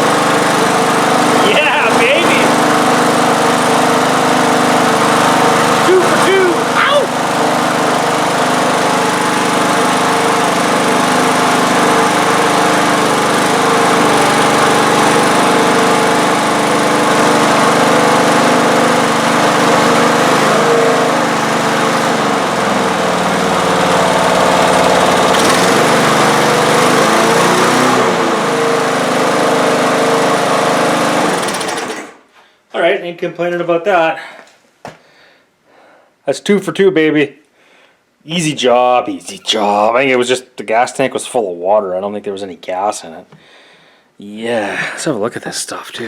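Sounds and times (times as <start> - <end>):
lawn mower engine running: 0.0 - 32.2.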